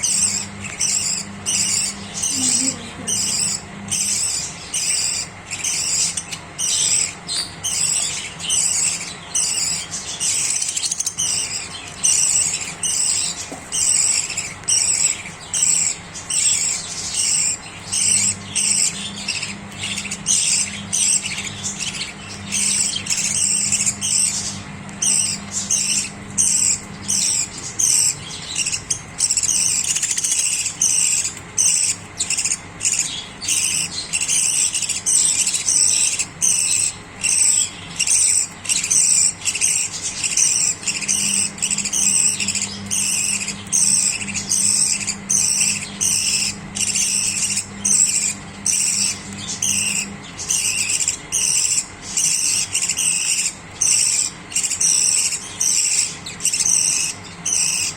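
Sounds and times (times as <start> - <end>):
budgerigars chattering and chirping: 0.0 - 57.9.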